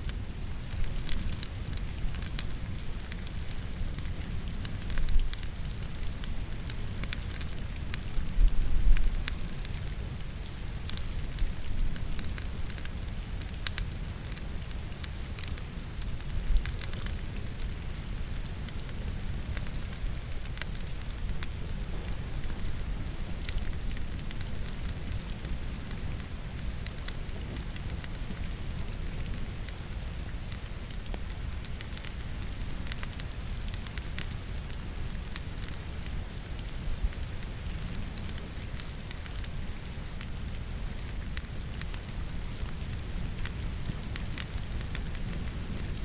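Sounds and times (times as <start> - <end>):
logs crackling in fireplace: 0.0 - 46.0
steady rainfall: 0.0 - 46.0.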